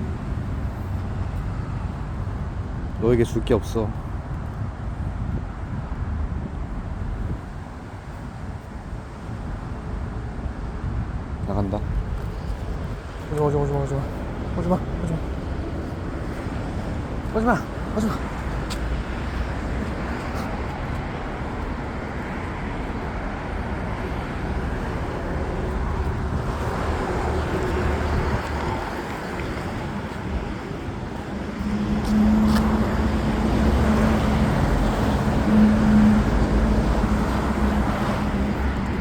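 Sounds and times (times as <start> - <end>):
road traffic rumble: 0.0 - 39.0
vehicle engine hum: 11.5 - 39.0.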